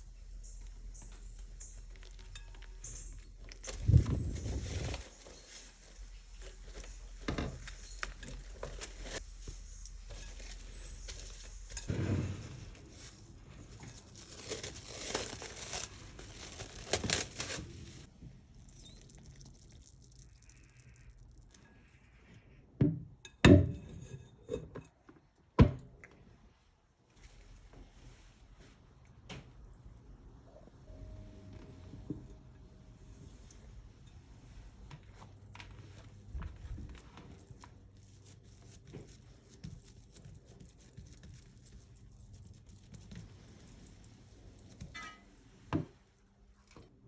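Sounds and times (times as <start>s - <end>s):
rustling and crinkling: 0.0s - 18.2s, 32.8s - 47.0s.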